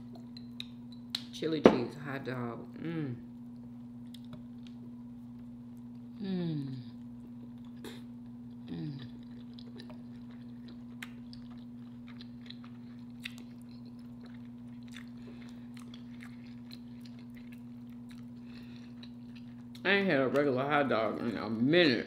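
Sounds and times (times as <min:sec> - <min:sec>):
steady low hum: 0:00.0 - 0:22.0
person humming mmm: 0:02.8 - 0:03.3, 0:06.1 - 0:07.0, 0:07.8 - 0:09.3
person chewing: 0:06.9 - 0:21.4.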